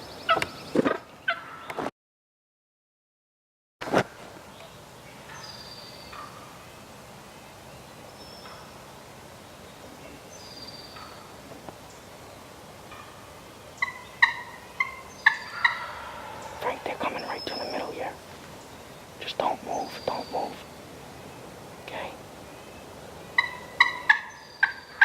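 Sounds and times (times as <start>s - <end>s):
wild turkey calling: 1.2s - 1.7s, 5.3s - 6.6s, 8.3s - 8.8s, 10.8s - 11.4s, 12.8s - 20.8s, 22.5s - 25.0s.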